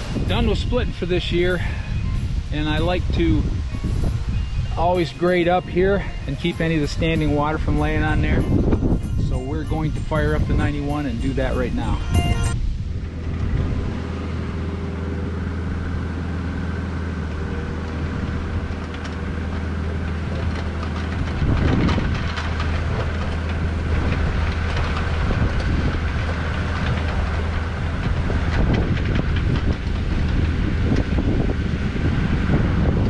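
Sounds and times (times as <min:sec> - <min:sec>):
heavy machine engine running: 0:00.0 - 0:33.0
clanking rattle: 0:15.5 - 0:33.0.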